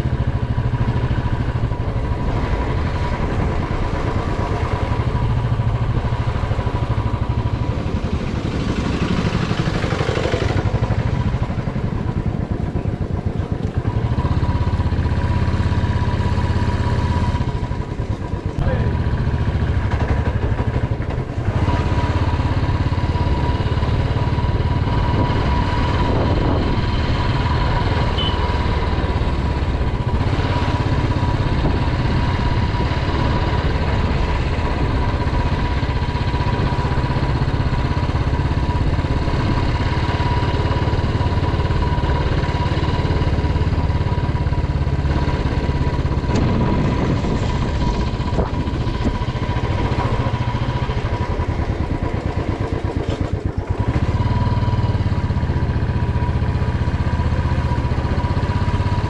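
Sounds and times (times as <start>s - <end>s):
motorcycle engine running steadily: 0.0s - 59.0s.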